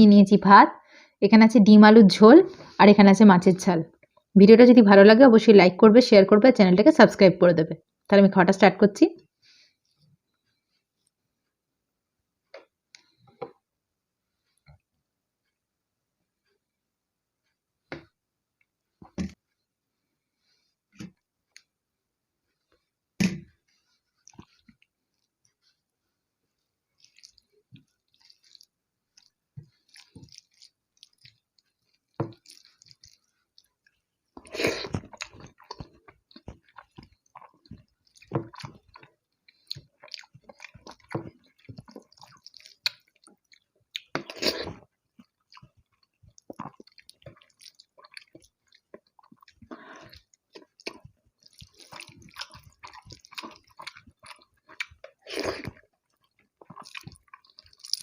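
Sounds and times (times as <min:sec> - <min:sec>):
wet chewing and smacking: 0:22.7 - 0:25.9, 0:26.8 - 0:58.0.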